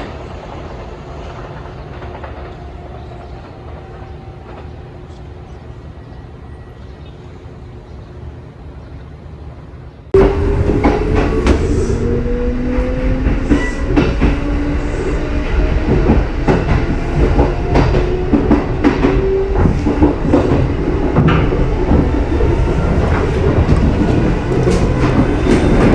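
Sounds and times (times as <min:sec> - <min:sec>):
train motor whine: 0:10.2 - 0:25.9
wheels clicking over rail joints: 0:15.9 - 0:25.9.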